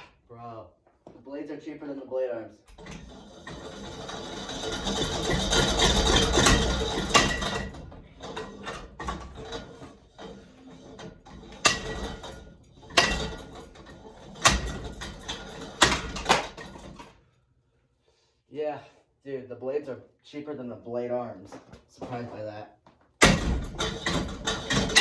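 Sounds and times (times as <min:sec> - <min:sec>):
ceiling fan being smashed: 0:03.5 - 0:17.1, 0:23.2 - 0:25.0.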